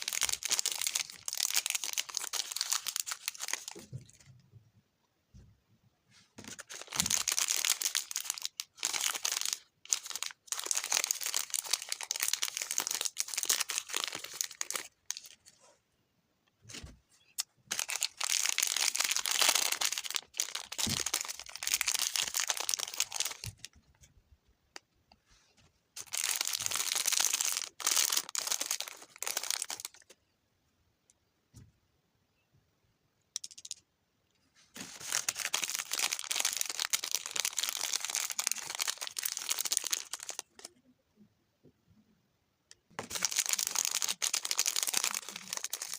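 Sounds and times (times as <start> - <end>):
packaging crinkling and tearing: 0.0 - 3.8, 6.4 - 15.4, 17.7 - 23.7, 26.0 - 30.1, 34.8 - 40.7, 43.0 - 45.9.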